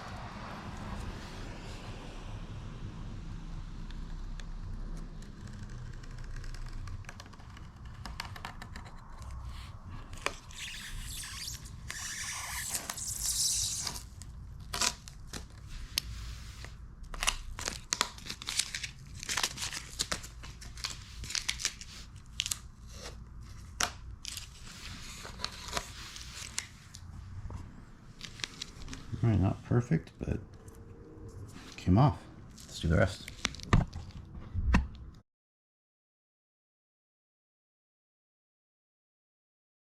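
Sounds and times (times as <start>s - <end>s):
masking tape peeling: 4.2s - 9.4s, 10.0s - 16.1s.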